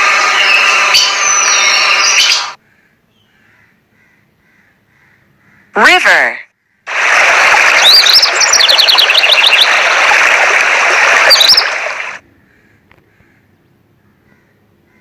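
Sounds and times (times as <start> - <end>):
stream water rushing: 6.9 - 12.2
small birds chirping: 7.6 - 12.2.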